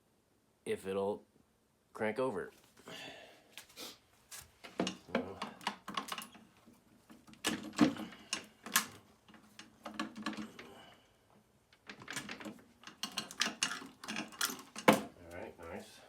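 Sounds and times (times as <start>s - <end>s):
irregular clicks and knocks: 4.6s - 15.2s.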